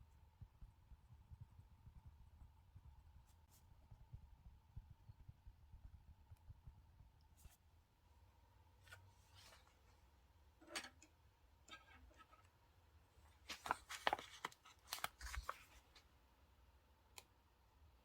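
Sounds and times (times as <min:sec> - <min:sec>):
paper crinkling: 0:13.3 - 0:16.1
paper tapping and rustling: 0:13.4 - 0:16.0.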